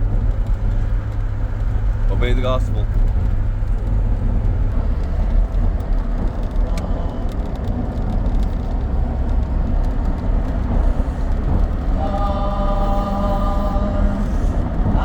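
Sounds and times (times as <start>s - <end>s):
tyre and wind noise: 0.0s - 12.0s
vehicle engine rumble: 0.0s - 15.0s.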